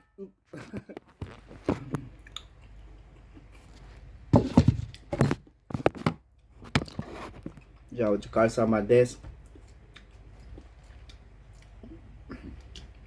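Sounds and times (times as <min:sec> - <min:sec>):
crunchy chewing: 0:09.4 - 0:13.0.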